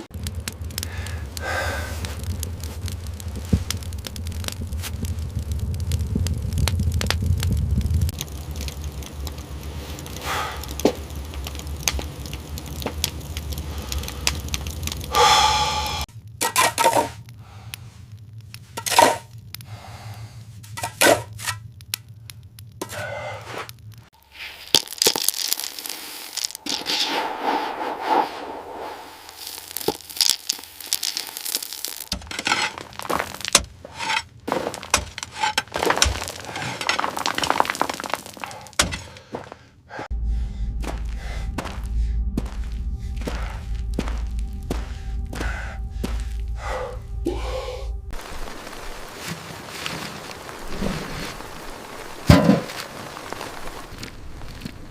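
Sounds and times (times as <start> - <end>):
low rumble: 0.0 - 16.4, 17.1 - 24.2, 25.8 - 37.3, 39.9 - 49.3
wood cracking and snapping: 0.1 - 17.4, 20.5 - 22.9, 23.6 - 26.7, 29.3 - 39.6, 48.1 - 54.9
scraping and rustling: 29.2 - 39.1.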